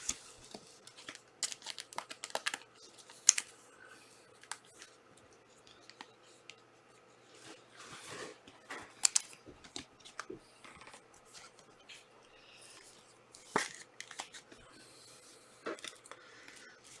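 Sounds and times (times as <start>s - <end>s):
cards clicking on table: 0.0s - 3.5s, 8.8s - 11.0s
foil packs rustling and crinkling: 0.0s - 3.5s.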